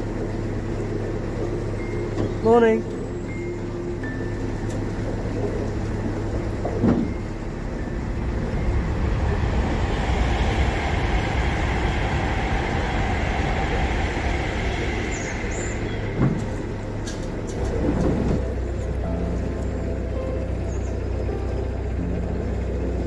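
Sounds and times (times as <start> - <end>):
diesel boat engine running: 0.0 - 23.0
rushing noise: 7.0 - 23.0.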